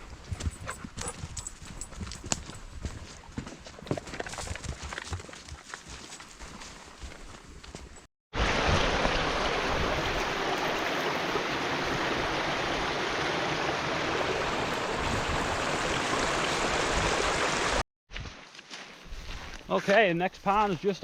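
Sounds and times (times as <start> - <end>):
brook water rushing: 8.3 - 17.8.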